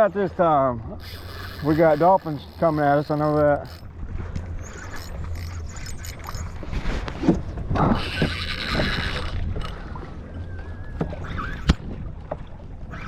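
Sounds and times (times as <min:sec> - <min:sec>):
water splashing against kayak: 0:00.0 - 0:13.0
wind rumble on microphone: 0:00.7 - 0:13.0
hissing water rush: 0:01.0 - 0:03.8.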